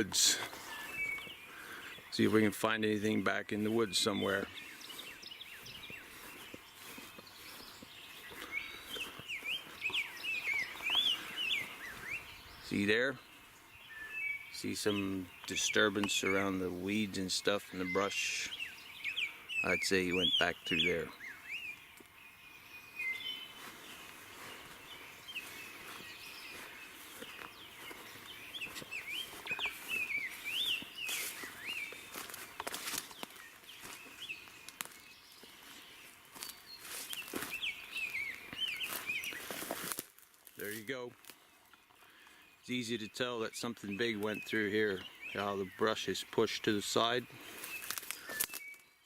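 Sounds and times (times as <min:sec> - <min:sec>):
footsteps through brush: 0:00.0 - 0:42.9, 0:43.8 - 0:49.0
songbirds singing: 0:00.0 - 0:49.0
songbird whistling: 0:00.6 - 0:02.0, 0:08.2 - 0:12.6, 0:28.4 - 0:32.1.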